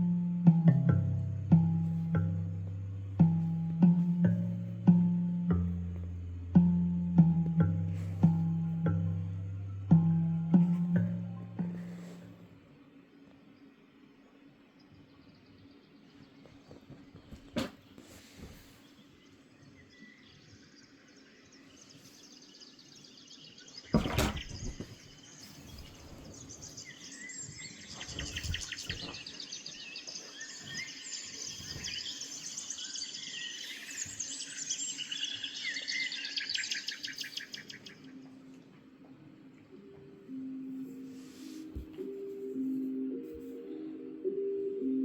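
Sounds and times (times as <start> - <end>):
birds chirping and twittering: 8.2 - 41.8.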